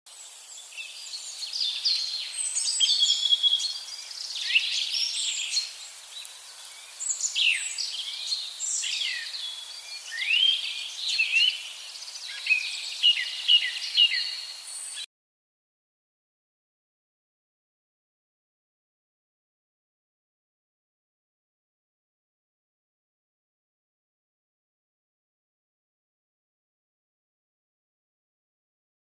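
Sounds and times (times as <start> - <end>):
songbirds chirping and singing: 0.1 - 15.1.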